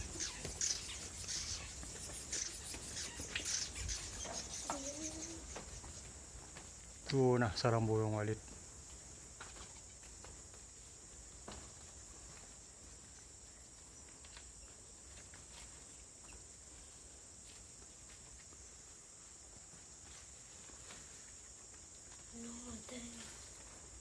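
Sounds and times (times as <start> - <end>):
high-pitched insect drone: 0.0 - 6.0.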